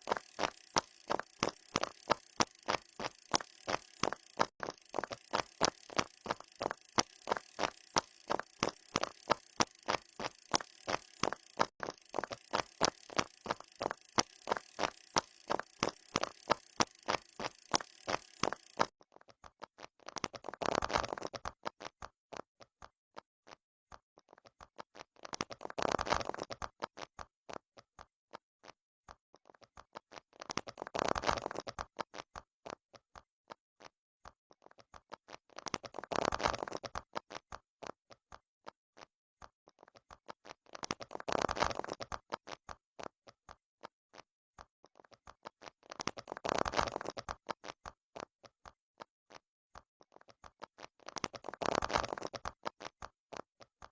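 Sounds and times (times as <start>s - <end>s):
fidget toy bubbles popping: 0.0s - 23.0s, 44.6s - 53.9s.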